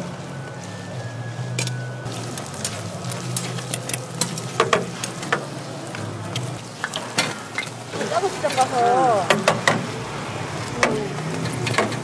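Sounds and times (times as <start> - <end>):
pancakes sizzling in oil: 2.1 - 8.6.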